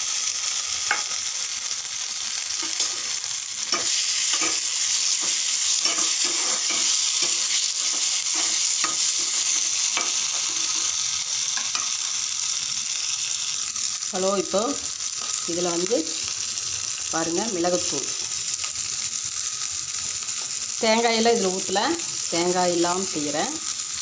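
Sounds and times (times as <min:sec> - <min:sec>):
meat and onions sizzling in oil: 0:00.0 - 0:24.0
steel ladle scraping a pan: 0:02.6 - 0:11.0.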